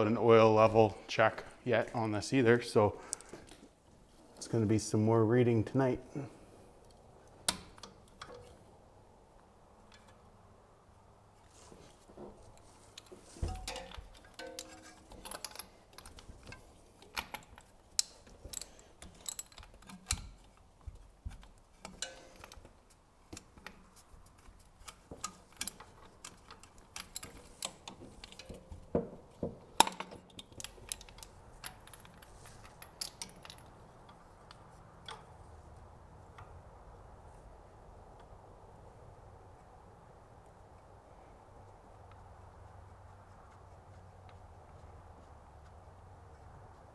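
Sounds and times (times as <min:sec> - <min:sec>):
metallic clicks of hand tools: 0:06.8 - 0:08.6, 0:12.6 - 0:29.0, 0:29.6 - 0:35.4.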